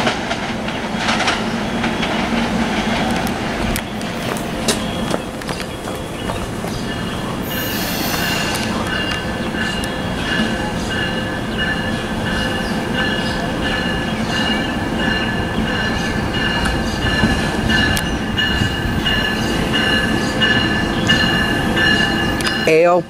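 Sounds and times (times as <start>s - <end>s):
train rumbling past: 0.0s - 23.0s
train wheels squealing: 4.0s - 22.8s.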